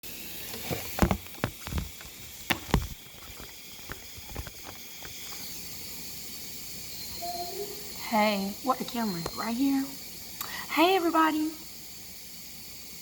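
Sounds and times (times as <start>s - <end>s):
steady high hiss: 0.0s - 13.0s
knocks and clicks of handling: 0.5s - 5.4s.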